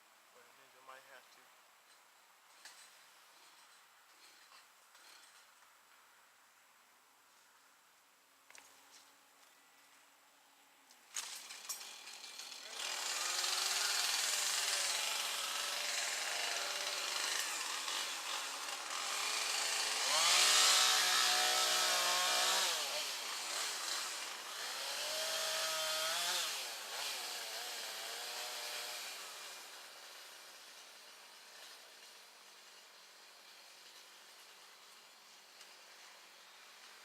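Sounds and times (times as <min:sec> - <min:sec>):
chainsaw cutting wood: 0:10.9 - 0:37.0.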